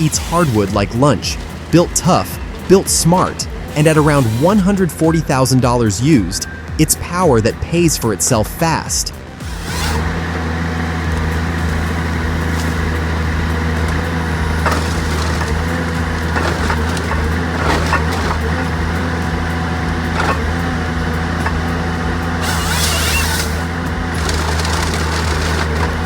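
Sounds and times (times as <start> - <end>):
diesel engine running: 0.0 - 26.0
wood cracking and splintering: 9.4 - 26.0.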